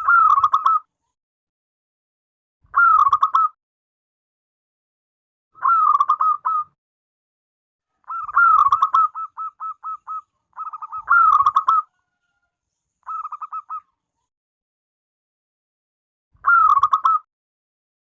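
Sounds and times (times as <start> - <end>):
dove cooing: 8.0 - 12.2, 13.1 - 13.9.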